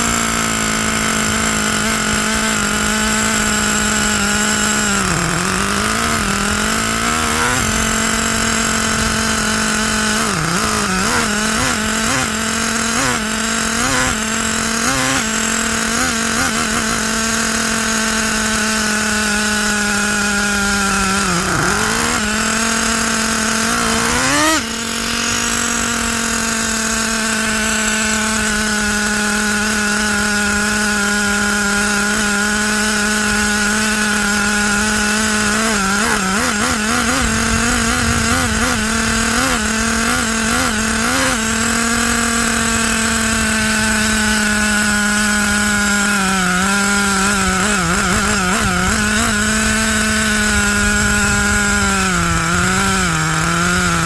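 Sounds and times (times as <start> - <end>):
model truck engine idling: 0.0 - 54.0.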